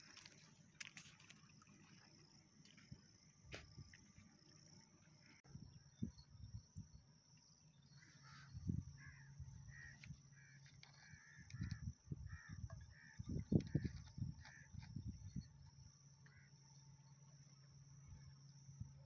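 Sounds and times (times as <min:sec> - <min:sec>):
bird calling: 0:07.9 - 0:14.8.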